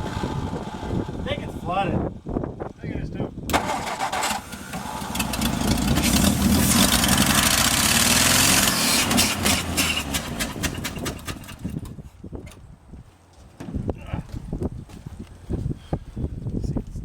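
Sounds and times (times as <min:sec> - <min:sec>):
truck engine running: 0:03.6 - 0:12.0.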